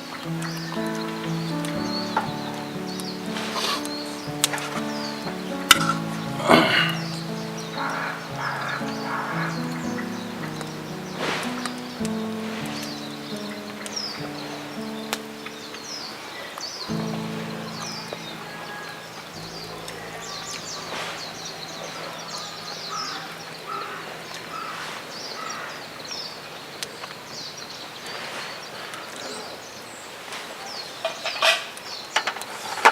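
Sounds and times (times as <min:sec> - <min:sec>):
birds chirping: 0:00.0 - 0:32.2
crow-like caws: 0:07.8 - 0:10.0, 0:22.9 - 0:25.8.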